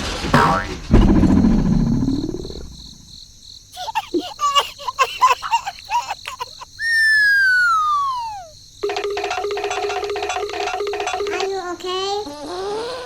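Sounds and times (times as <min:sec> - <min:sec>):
short chirpy squeaks: 0:06.3 - 0:08.6
long falling whistle: 0:06.8 - 0:08.5
faint high whine: 0:06.8 - 0:08.6.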